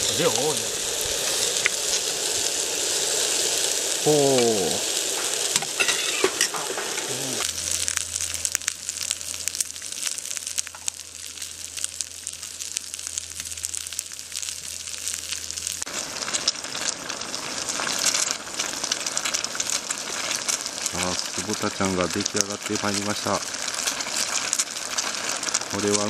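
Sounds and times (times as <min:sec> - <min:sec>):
food sizzling in a pan: 0:00.0 - 0:26.0
low steady hum: 0:05.4 - 0:15.8.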